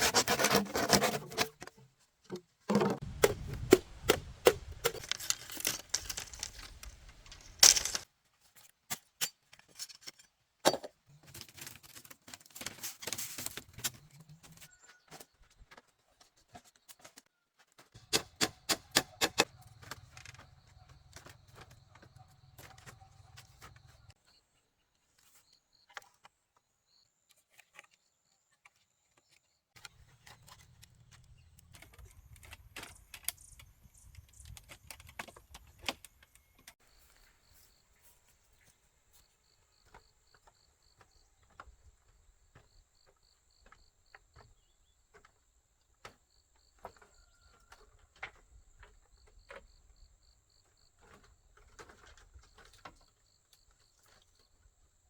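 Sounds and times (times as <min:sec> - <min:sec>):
insects chirping: 0:31.4 - 0:55.0.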